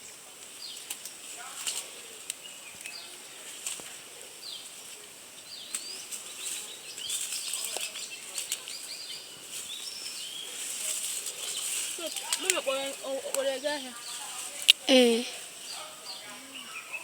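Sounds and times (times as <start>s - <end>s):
steady high-pitched hiss: 0.0s - 17.0s
birds chirping: 4.3s - 17.0s.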